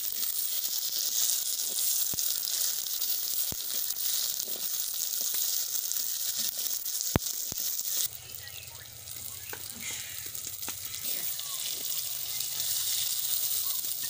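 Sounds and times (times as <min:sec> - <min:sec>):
vegetables sizzling in a pot: 0:00.0 - 0:14.0.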